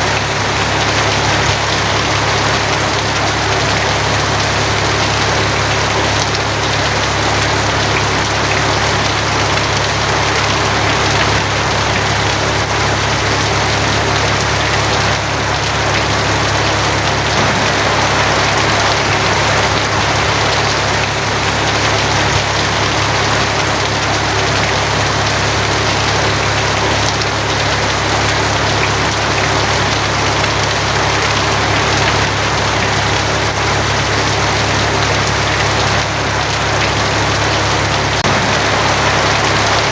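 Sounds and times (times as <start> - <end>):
heavy rain on a tin roof: 0.0 - 39.9
low rumble: 17.4 - 22.1, 38.2 - 39.9.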